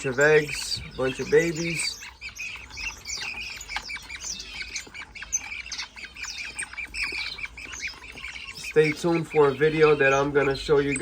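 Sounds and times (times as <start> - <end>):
caged birds squawking and chirping: 0.0 - 11.0.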